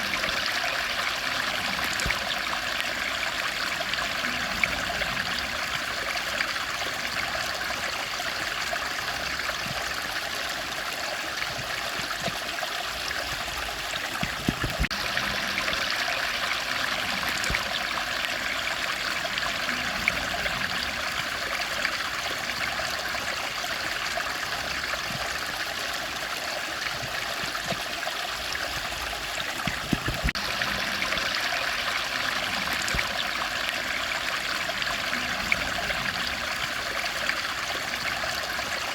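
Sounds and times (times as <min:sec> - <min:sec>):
stream rushing and trickling: 0:00.0 - 0:38.9.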